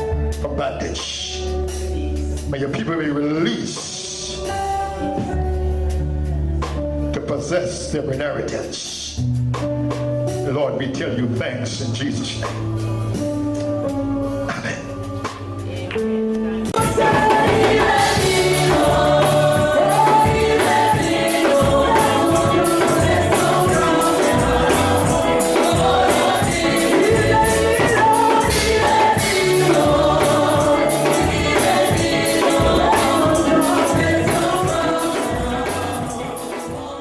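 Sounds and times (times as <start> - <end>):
band with bass and beat: 0.0 - 7.5, 8.9 - 37.0
gospel choir singing: 3.2 - 6.5, 15.5 - 37.0.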